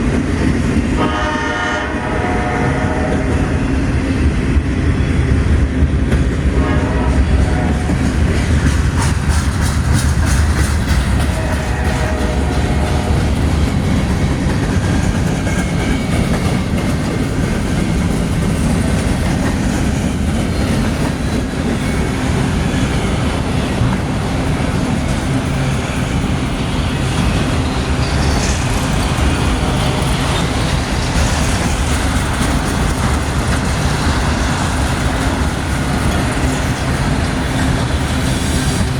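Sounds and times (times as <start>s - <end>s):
freight cars rumbling: 0.0s - 38.9s
wheels clicking over rail joints: 7.9s - 38.9s.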